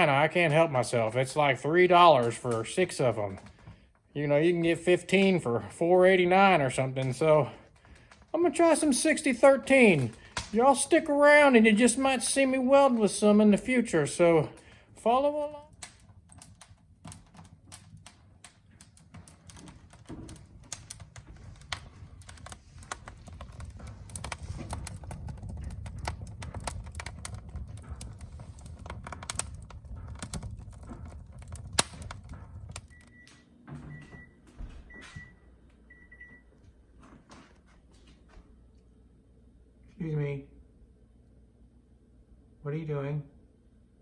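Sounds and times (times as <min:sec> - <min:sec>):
wood fire crackling: 0:00.0 - 0:39.1.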